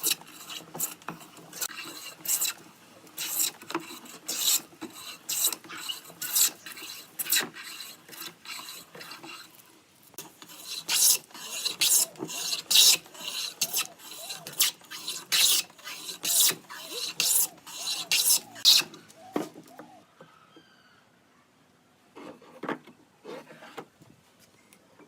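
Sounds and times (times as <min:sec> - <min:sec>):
hand tool rasping wood: 0:00.0 - 0:09.6, 0:10.2 - 0:19.0.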